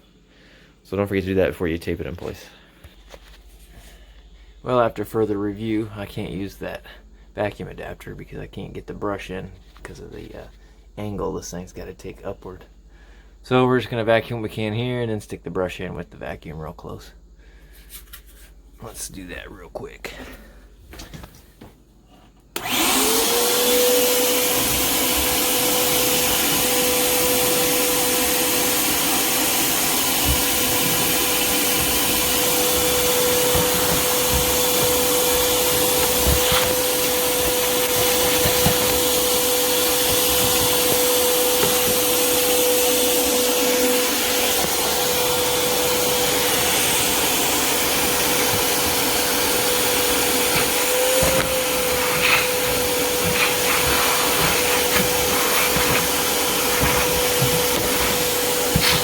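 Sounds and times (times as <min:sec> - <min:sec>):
shop vac motor whine: 0:22.1 - 0:59.0.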